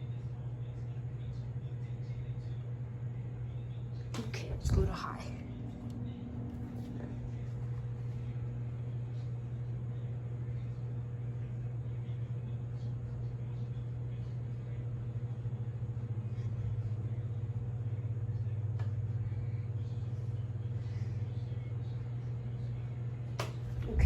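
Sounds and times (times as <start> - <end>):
ceiling fan humming: 0.0 - 24.0.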